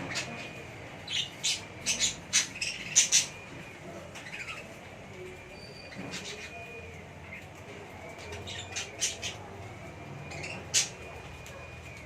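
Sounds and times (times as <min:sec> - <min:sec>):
budgerigars squawking: 0:00.0 - 0:03.5
faint bird chirps: 0:00.0 - 0:12.0.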